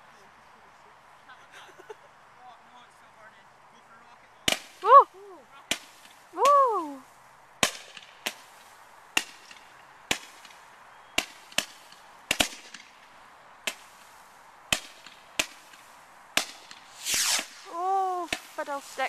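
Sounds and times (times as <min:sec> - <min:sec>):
fireworks bangs: 0:11.2 - 0:19.0.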